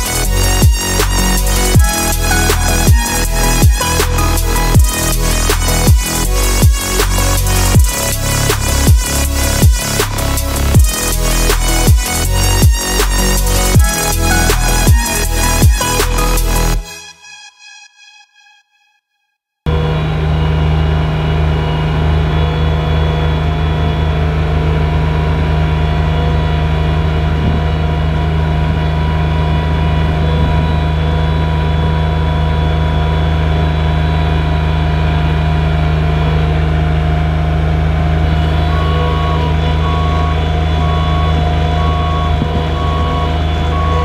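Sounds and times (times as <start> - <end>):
diesel engine running under load: 0.0 - 16.8, 19.7 - 44.0
backup alarm beeping: 38.2 - 44.0.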